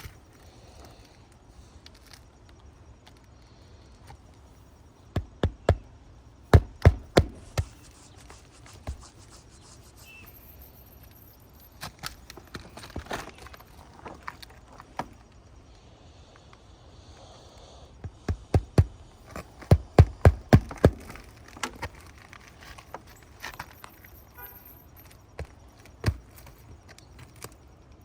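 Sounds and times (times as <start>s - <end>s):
sharp knocks on roof: 6.5s - 7.7s.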